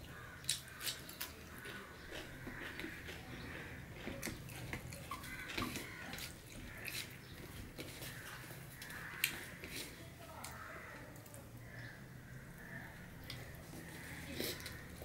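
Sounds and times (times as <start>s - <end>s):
person chewing with wet smacks: 0.0s - 10.6s
fingers mixing rice on steel plate: 0.1s - 10.9s.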